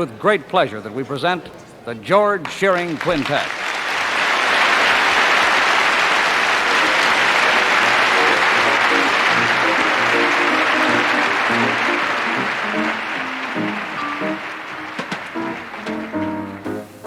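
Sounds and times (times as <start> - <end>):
audience applauding: 2.4 - 17.0
jazz band playing: 7.1 - 17.0.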